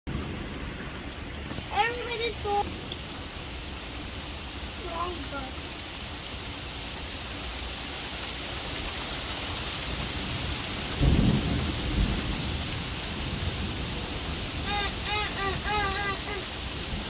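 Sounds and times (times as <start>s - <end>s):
heavy rain falling: 0.1s - 17.0s
thunder rumbling: 9.8s - 17.0s.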